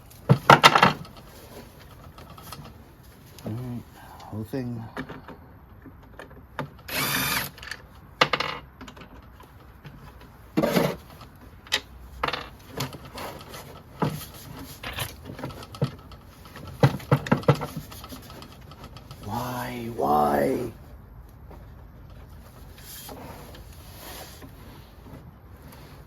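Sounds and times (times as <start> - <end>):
cordless drill running: 6.9 - 7.5.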